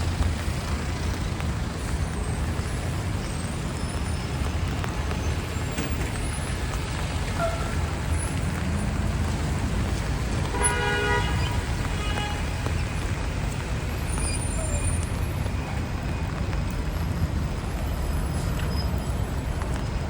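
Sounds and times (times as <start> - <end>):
city street traffic: 0.0 - 20.0
vehicle horn honking: 10.5 - 12.5.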